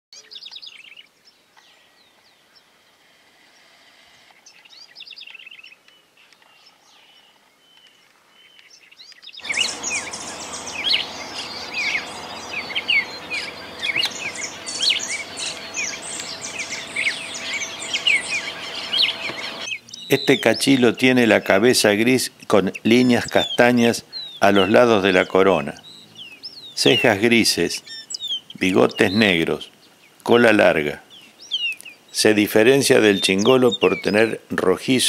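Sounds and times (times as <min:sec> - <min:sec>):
wild birds singing and calling: 0:00.2 - 0:35.0.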